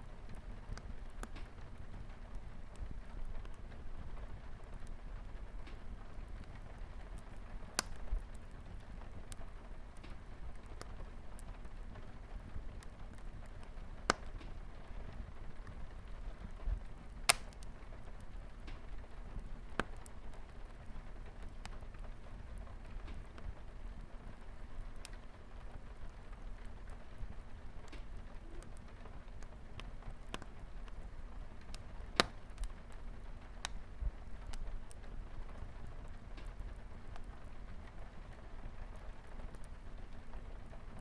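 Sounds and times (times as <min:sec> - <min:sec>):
light rain on a window: 0:00.0 - 0:41.0
wood fire crackling: 0:00.0 - 0:41.0.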